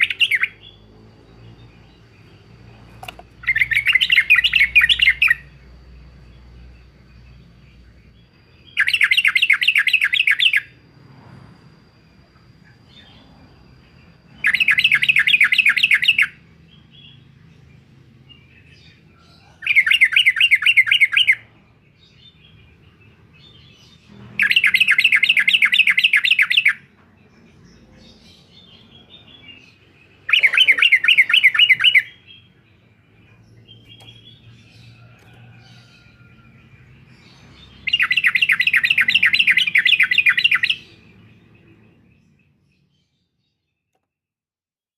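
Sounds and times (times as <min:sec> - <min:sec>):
faint bird chirps: 0:00.0 - 0:44.2
bird stuttering chatter: 0:30.3 - 0:32.0.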